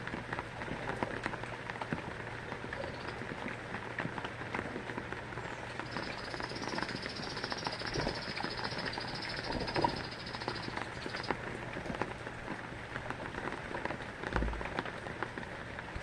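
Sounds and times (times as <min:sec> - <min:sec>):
rain drops pattering: 0:00.0 - 0:16.0.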